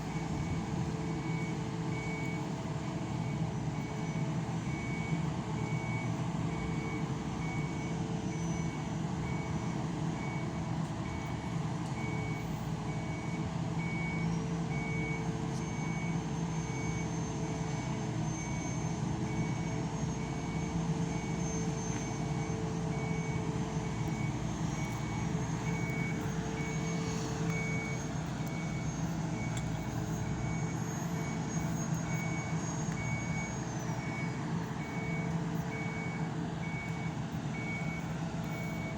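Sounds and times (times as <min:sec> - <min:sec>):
heavy machinery running: 0:17.5 - 0:38.9.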